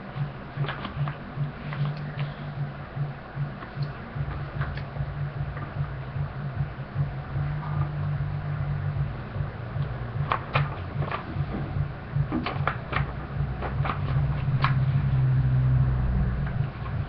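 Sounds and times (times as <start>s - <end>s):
steady low hum: 0.0s - 17.0s
paper folding crackles: 12.3s - 15.3s.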